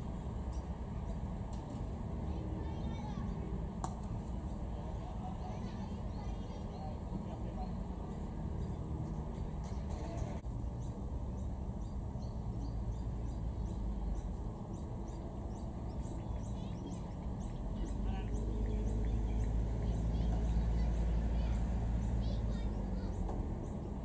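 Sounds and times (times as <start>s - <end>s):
small bird chirping: 5.6s - 24.0s
bird twittering: 7.6s - 23.9s.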